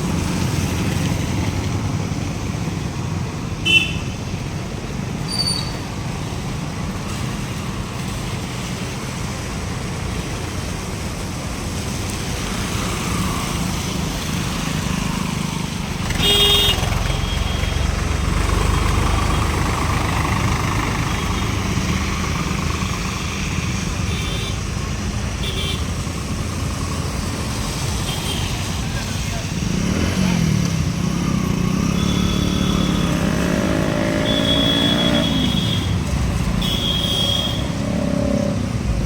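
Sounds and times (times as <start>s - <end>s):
road traffic passing: 0.0s - 39.0s
vehicle horn honk: 3.6s - 4.2s, 16.2s - 17.8s, 31.8s - 36.0s, 36.6s - 37.8s.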